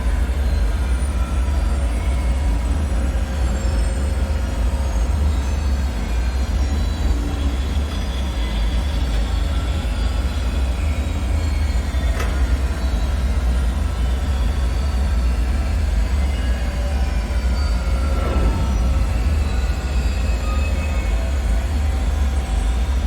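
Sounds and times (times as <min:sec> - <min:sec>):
deep rumble: 0:17.4 - 0:22.5.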